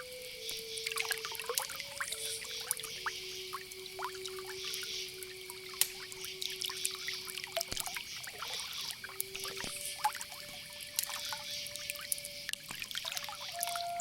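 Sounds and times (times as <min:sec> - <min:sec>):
crickets chirring: 0:00.0 - 0:14.0
campfire crackling and popping: 0:00.4 - 0:14.0.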